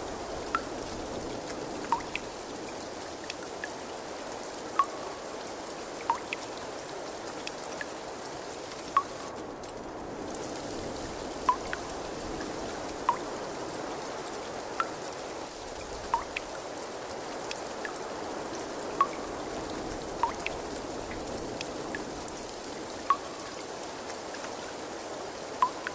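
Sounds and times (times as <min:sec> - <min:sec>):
water trickling: 0:00.0 - 0:25.9
drops plinking into water: 0:01.9 - 0:02.2, 0:04.8 - 0:05.1, 0:06.1 - 0:06.4, 0:11.5 - 0:11.9, 0:16.1 - 0:16.4, 0:20.2 - 0:20.5, 0:25.6 - 0:25.9.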